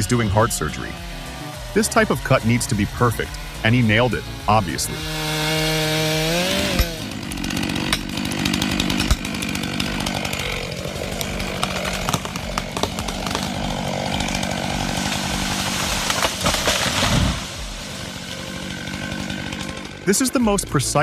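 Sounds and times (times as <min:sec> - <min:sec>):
chainsaw revving: 0:00.0 - 0:21.0
sharp cracks and knocks: 0:06.4 - 0:18.1.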